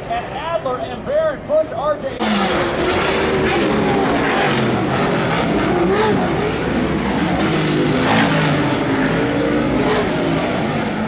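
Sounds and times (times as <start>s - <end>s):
racing engines revving: 2.2s - 11.0s.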